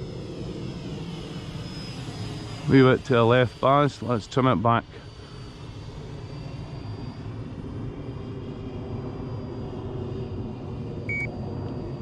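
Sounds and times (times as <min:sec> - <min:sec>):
electric ducted fan whine: 0:00.0 - 0:12.0
short high beep: 0:11.1 - 0:11.3.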